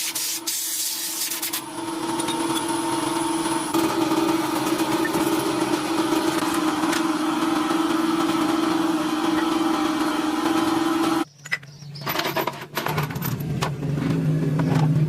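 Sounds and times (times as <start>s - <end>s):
motor humming steadily: 1.6s - 11.2s.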